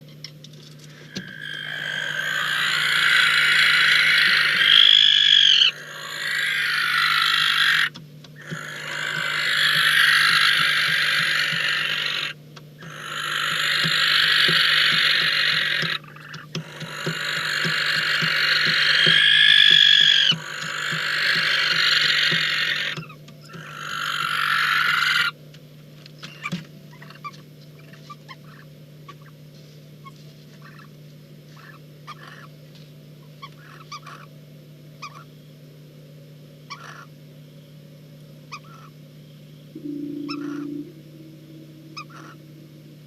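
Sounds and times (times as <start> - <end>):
barn owl hissing screech: 1.1 - 16.0, 16.7 - 23.0, 23.7 - 25.3
thin whistled note: 39.8 - 43.0.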